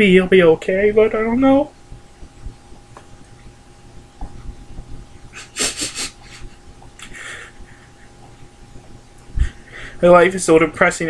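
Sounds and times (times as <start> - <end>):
man's shaky sniffling breaths: 5.3 - 8.2, 9.4 - 10.0.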